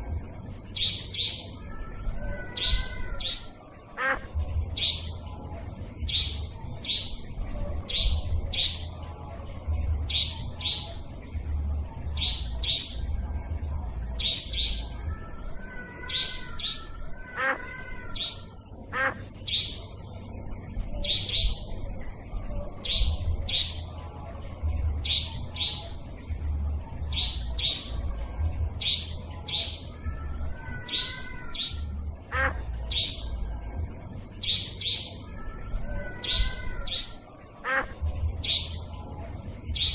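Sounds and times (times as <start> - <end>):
steady low hum: 0.0 - 15.4, 17.0 - 39.9
lower wavering bird calls: 0.5 - 9.1, 10.1 - 11.2, 12.1 - 13.2, 14.1 - 24.0, 25.0 - 26.2, 27.1 - 39.0
nightjar calls: 0.6 - 5.3, 6.0 - 9.0, 10.1 - 11.1, 12.2 - 13.1, 14.2 - 20.0, 21.0 - 21.8, 22.8 - 24.0, 25.0 - 26.1, 27.1 - 28.0, 28.8 - 33.4, 34.4 - 39.0.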